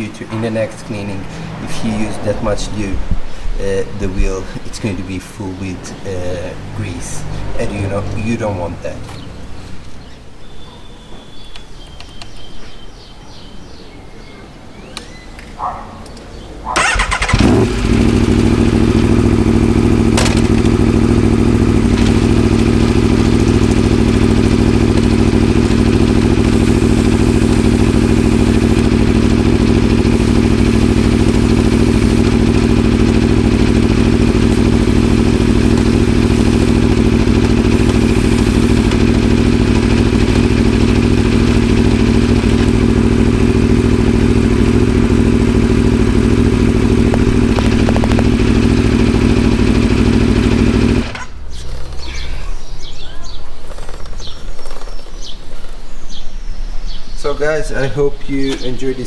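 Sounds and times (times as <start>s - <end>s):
sharp click: 14.9s - 16.3s
motorcycle engine starting and idling: 15.0s - 56.2s, 57.7s - 59.0s.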